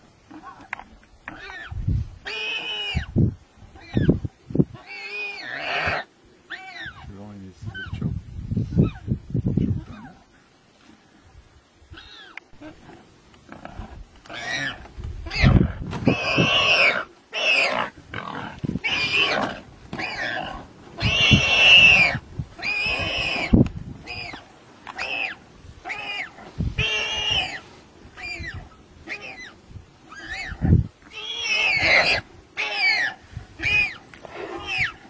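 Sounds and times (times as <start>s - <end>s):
animal crying out harshly: 4.8s - 7.0s, 14.3s - 17.9s, 18.8s - 24.4s, 25.0s - 27.6s, 28.2s - 35.0s.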